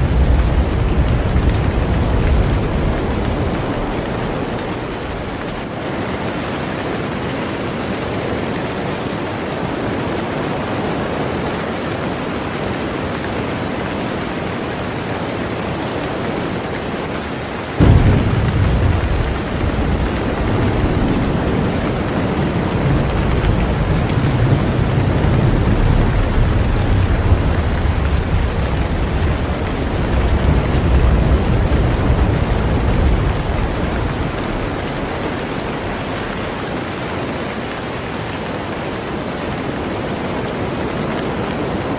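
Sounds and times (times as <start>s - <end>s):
deep rumble of thunder: 0.0s - 5.8s, 17.8s - 37.6s
heavy rain on a boat: 0.0s - 41.9s.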